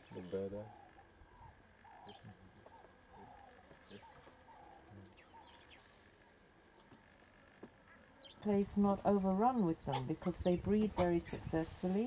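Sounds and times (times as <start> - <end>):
faint high bird chirps: 0.0 - 5.9.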